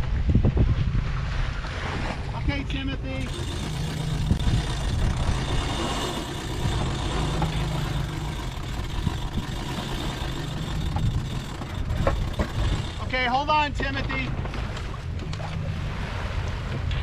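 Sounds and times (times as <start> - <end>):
wind on microphone: 0.0 - 2.5
water along a hull: 0.0 - 17.0.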